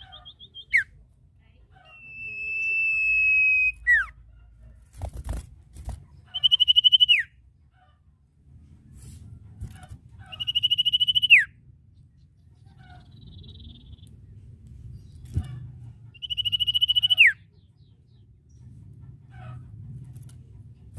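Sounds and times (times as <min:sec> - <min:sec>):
bird whistling and trilling: 0:00.0 - 0:00.9, 0:01.9 - 0:04.1, 0:06.3 - 0:07.3, 0:10.2 - 0:11.5, 0:13.0 - 0:14.0, 0:16.2 - 0:17.4.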